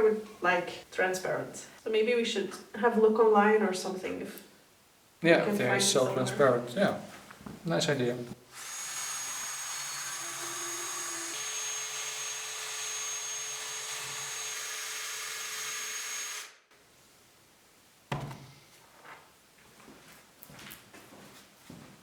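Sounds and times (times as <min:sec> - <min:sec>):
power tool whining: 0:08.5 - 0:16.6.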